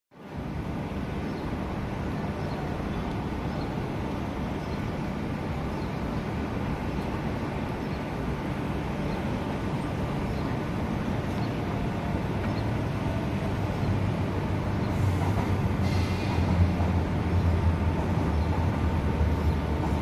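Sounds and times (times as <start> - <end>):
electric train rumbling: 0.2 - 20.0.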